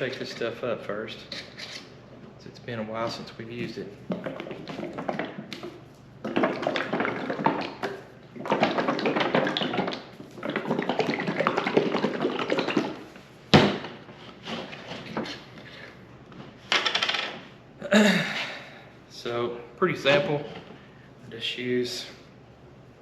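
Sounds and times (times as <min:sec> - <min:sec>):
cream sloshing in shaken container: 0:03.2 - 0:13.2.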